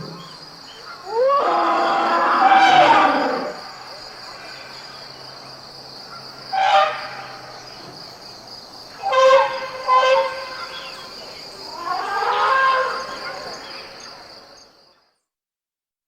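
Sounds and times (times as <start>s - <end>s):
elephants trumpeting: 0.0s - 3.7s, 6.5s - 7.5s, 8.9s - 14.0s
insects chirring: 0.0s - 15.2s.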